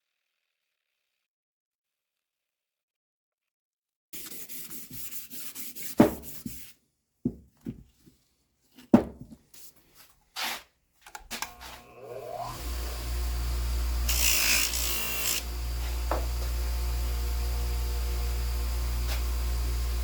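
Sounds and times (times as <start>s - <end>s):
quick rubbing strokes: 4.2s - 6.7s
small power tool whining: 11.2s - 20.0s.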